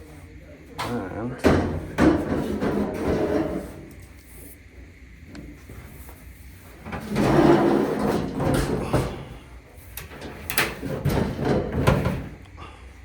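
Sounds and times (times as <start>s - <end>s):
parts scraping and sliding: 2.2s - 4.4s.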